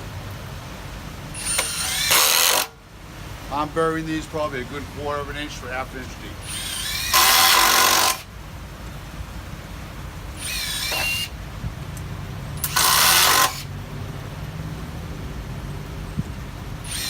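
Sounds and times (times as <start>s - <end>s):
impact driver motor whine: 1.4s - 2.7s, 6.4s - 8.3s, 10.4s - 11.4s, 12.6s - 13.7s
impact driver hammering: 1.4s - 2.8s, 6.5s - 8.3s, 10.4s - 11.3s.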